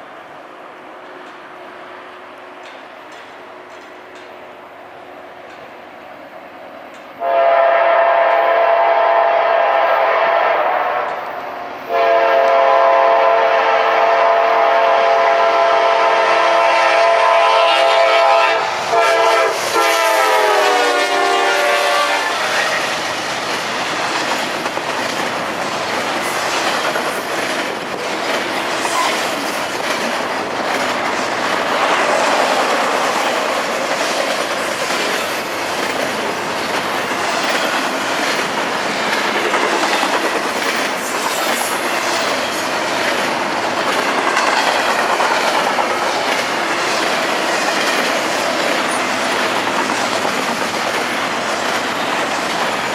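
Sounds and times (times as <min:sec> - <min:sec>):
wheels clacking over rail joints: 0:02.6 - 0:04.7, 0:05.3 - 0:05.9, 0:20.9 - 0:52.9
locomotive air horn blasts: 0:07.2 - 0:11.3, 0:11.9 - 0:22.9.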